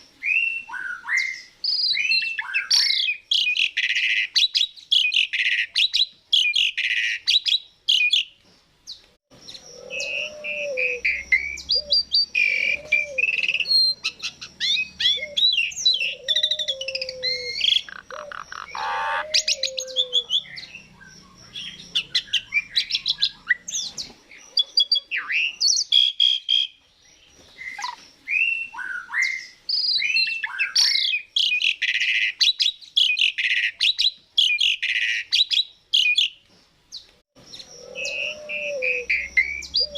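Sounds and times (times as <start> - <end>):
starling singing: 9.4 - 26.8, 37.5 - 39.9.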